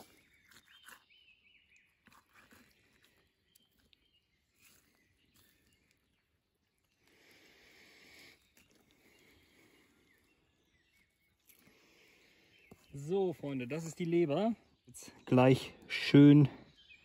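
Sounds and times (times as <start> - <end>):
faint high chirp: 0.0 - 6.4.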